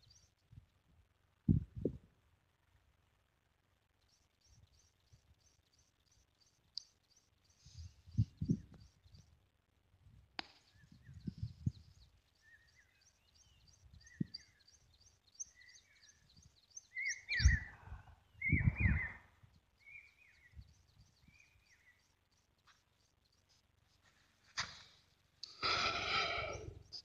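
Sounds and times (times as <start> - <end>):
lower bird call: 10.6 - 22.0, 25.4 - 27.0
high bird chirps: 10.8 - 17.7.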